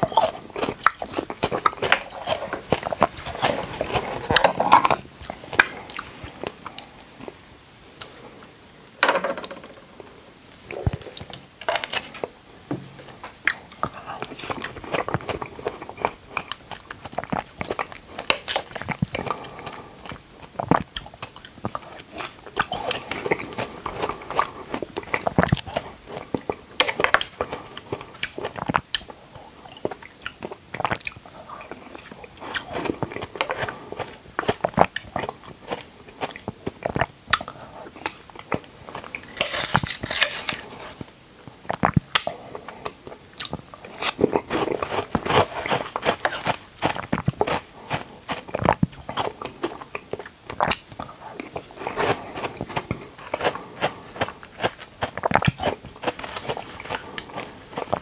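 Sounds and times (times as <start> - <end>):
biting and chewing: 0.0 - 7.4, 13.1 - 58.0.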